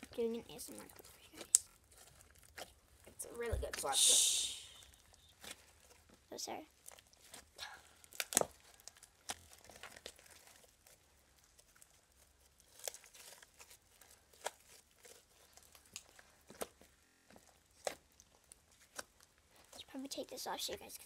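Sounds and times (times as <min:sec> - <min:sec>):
slime popping and crackling: 0:00.0 - 0:21.0.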